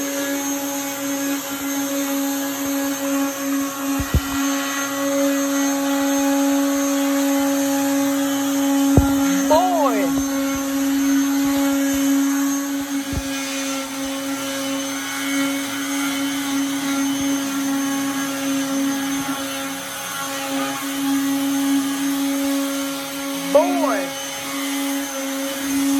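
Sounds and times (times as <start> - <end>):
electric sander whining: 0.0 - 25.9.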